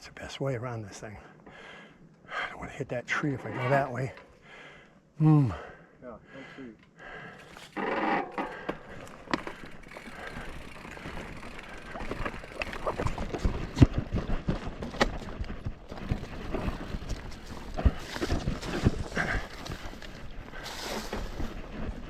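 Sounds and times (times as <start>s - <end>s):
bike rattling: 7.4s - 22.0s
bike tyres knocking over stones: 8.1s - 21.6s.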